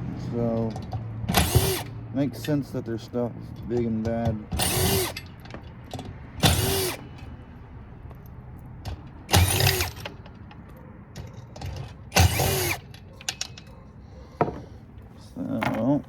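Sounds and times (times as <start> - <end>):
clicks and clinks of parts: 0.5 - 2.6, 8.1 - 13.8
power drill driving screws: 1.3 - 1.9, 4.5 - 5.3, 6.4 - 7.1, 9.3 - 10.1, 12.1 - 12.9.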